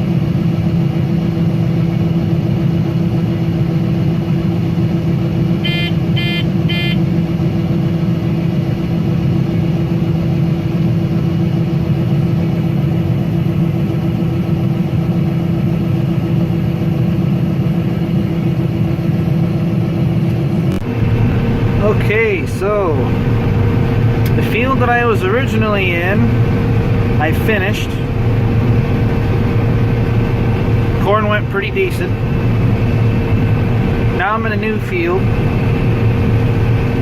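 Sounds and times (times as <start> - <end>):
combine harvester running: 0.0 - 37.0
short beeps: 5.6 - 7.0.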